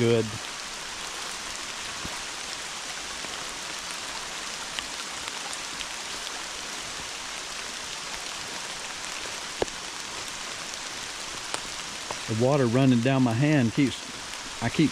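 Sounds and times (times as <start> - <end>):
heavy rain falling: 0.0 - 14.9
raindrops ticking close by: 0.0 - 14.9.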